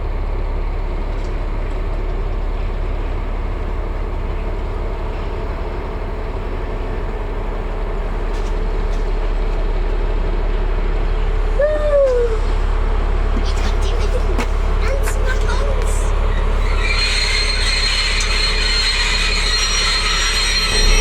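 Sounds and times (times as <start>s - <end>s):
locomotive engine rumble: 0.0s - 21.0s
falling tone: 20.5s - 21.0s.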